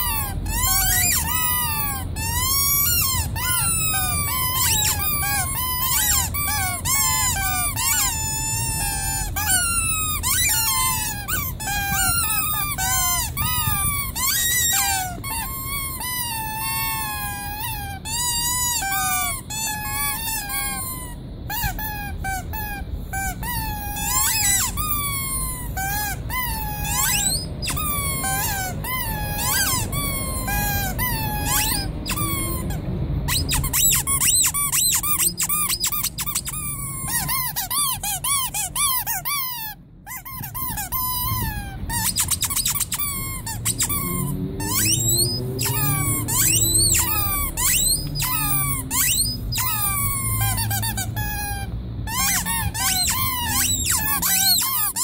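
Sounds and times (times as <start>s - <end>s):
squeaky rubber toys squeezed: 0.0s - 55.0s.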